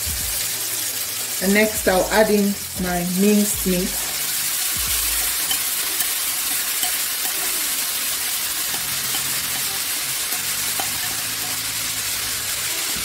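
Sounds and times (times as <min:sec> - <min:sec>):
meat and onions sizzling in oil: 0:00.0 - 0:13.0
spoon scraping a plate: 0:08.7 - 0:11.6.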